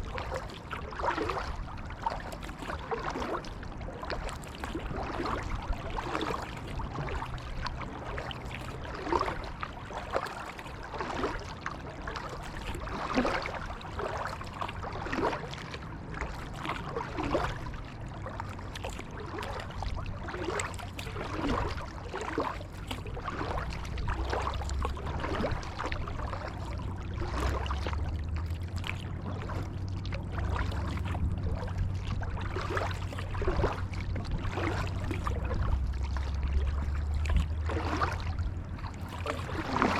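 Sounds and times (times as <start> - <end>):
kayak paddle strokes in water: 0.0 - 39.9
low rumble: 22.7 - 39.9.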